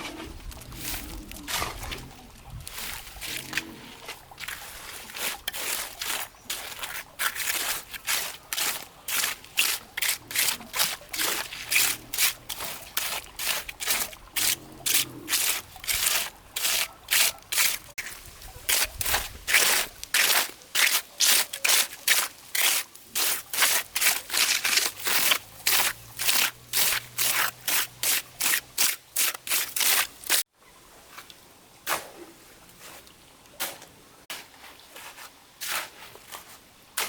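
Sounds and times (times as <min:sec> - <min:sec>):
rapid scraping strokes: 0:03.2 - 0:30.4.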